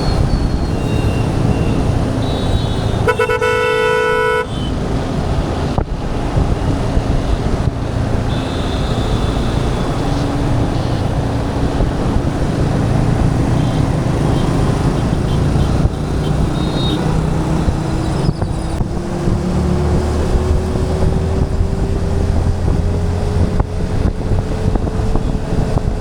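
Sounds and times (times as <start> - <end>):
motorcycle engine rumble: 0.0 - 26.0
wind noise: 0.0 - 26.0
vehicle horn honking: 0.7 - 4.8, 8.3 - 11.1, 13.5 - 17.2.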